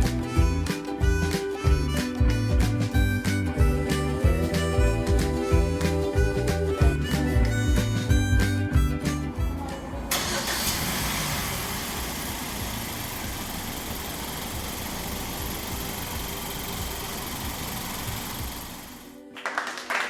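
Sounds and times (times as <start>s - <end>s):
background music: 0.0s - 11.3s
car engine idling: 1.8s - 19.1s.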